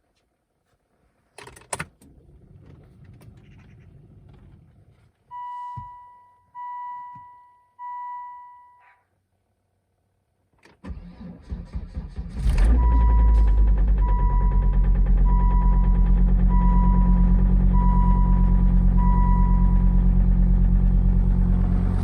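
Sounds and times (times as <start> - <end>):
low ignition hum: 1.9 - 8.8, 12.2 - 22.0
electronic dashboard chimes: 5.3 - 8.8, 14.0 - 20.0
diesel starter cranking: 10.8 - 19.3.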